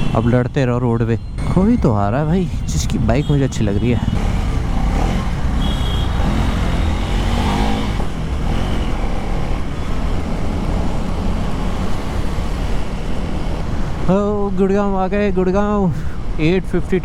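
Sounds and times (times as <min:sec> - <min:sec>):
motorcycle engine running: 0:03.7 - 0:13.7.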